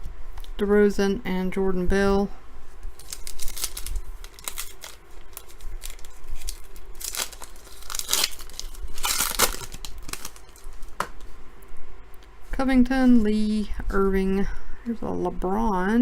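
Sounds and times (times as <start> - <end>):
foil wrapper tearing and crinkling: 2.9 - 11.0.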